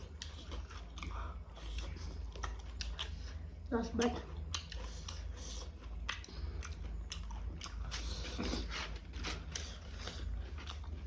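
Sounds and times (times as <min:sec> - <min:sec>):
person chewing food: 0:00.0 - 0:11.0
steady low hum: 0:00.0 - 0:11.0
wet mouth clicks: 0:04.0 - 0:08.5.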